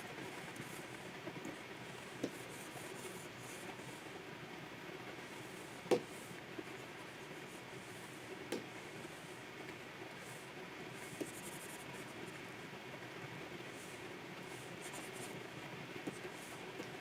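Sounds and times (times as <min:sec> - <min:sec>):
pen taps: 0:02.2 - 0:02.4, 0:05.9 - 0:06.1.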